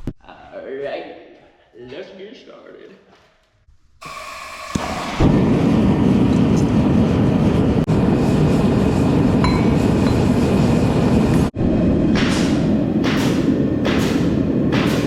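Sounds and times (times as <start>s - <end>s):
forge fire roaring: 4.8s - 14.8s.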